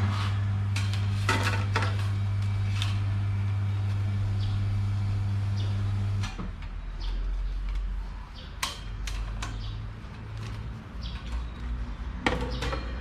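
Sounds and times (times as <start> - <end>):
electric fan motor humming: 0.0 - 7.1.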